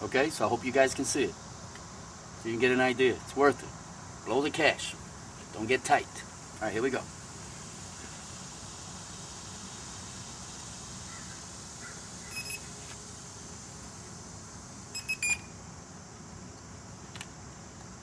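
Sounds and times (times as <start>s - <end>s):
steady background hiss: 0.0s - 18.0s
short electronic beeps: 12.3s - 12.7s, 15.0s - 15.5s.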